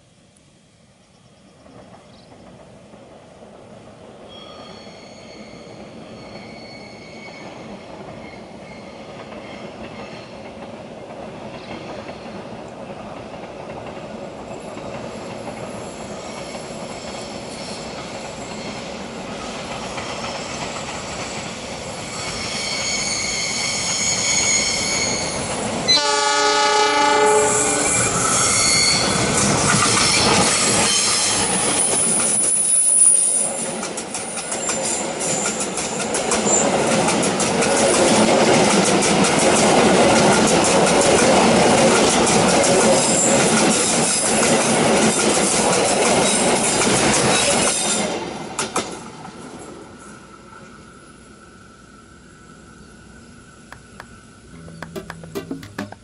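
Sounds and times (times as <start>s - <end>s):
diesel locomotive: 0.0s - 56.0s
wheels squealing and clattering: 4.3s - 10.4s, 19.8s - 25.6s, 27.8s - 33.4s
train horn blast: 25.9s - 29.0s.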